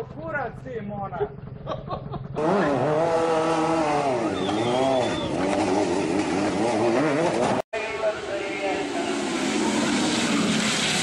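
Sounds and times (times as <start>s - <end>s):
motorcycle engine revving: 1.3s - 7.6s.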